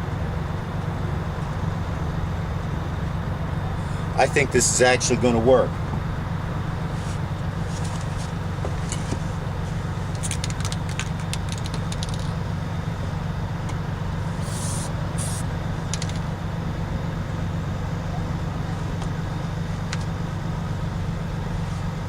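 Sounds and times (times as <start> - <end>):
vehicle engine idling: 0.0 - 22.0
crackling clicks of handling: 10.1 - 12.4, 15.9 - 16.3
aerosol spray can hissing: 14.3 - 15.4.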